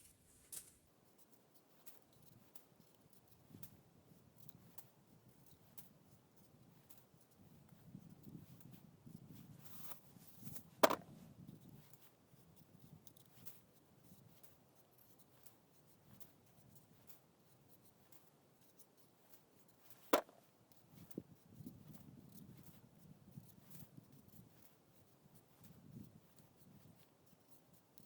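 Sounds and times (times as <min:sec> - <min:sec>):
faint handling sounds: 0:00.0 - 0:28.0
sharp knocks: 0:10.8 - 0:11.1, 0:20.2 - 0:20.4.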